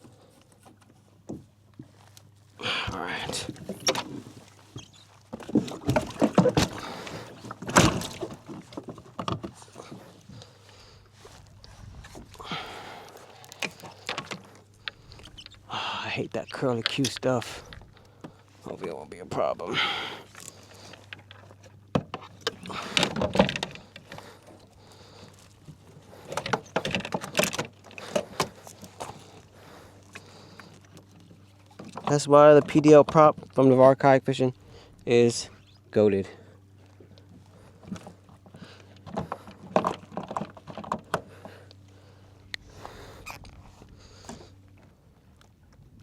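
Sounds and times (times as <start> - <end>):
low steady hum: 0.0 - 46.0
clunks on plastic kayak hull: 5.4 - 10.0.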